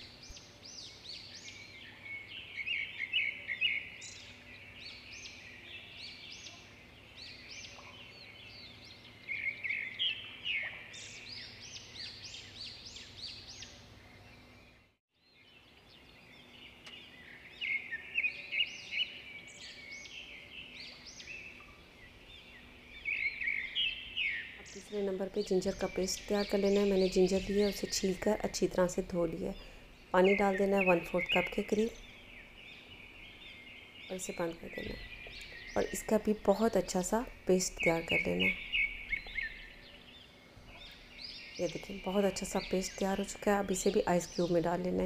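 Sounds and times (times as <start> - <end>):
low steady background: 0.0 - 45.0
small birds chirping: 0.0 - 45.0.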